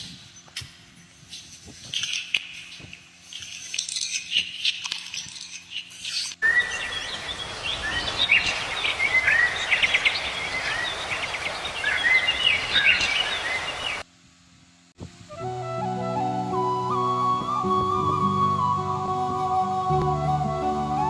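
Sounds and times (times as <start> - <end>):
small birds chirping: 0.0 - 14.0
steady outdoor hiss: 0.0 - 21.0.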